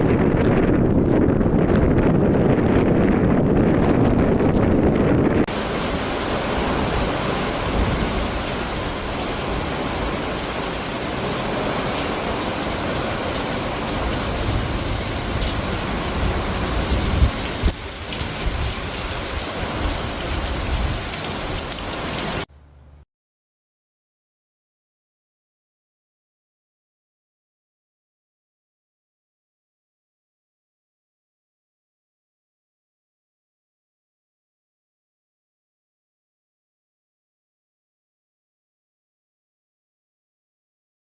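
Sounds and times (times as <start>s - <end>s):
low rushing wind-like noise: 0.0s - 23.0s.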